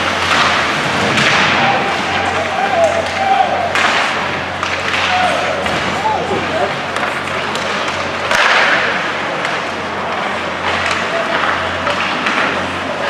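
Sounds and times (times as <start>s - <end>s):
arena noise rush: 4.0s - 9.1s.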